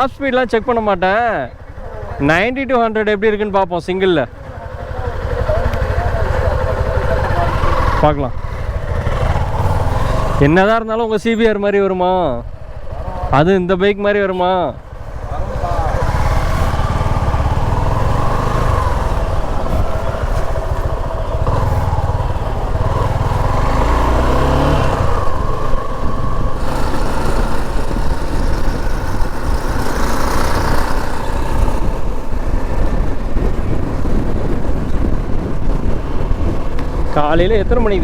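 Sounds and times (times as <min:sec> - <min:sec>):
motorcycle engine pulling through gears: 0:05.2 - 0:10.8, 0:14.8 - 0:38.0
wind noise on microphone: 0:15.8 - 0:38.0.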